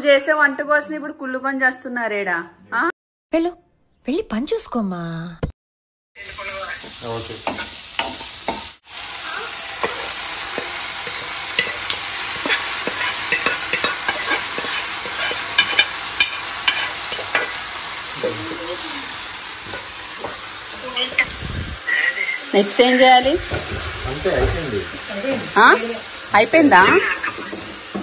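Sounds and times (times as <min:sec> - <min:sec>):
vegetables sizzling in oil: 0:06.2 - 0:28.0
spatula scraping a pan: 0:09.8 - 0:17.7, 0:26.4 - 0:28.0.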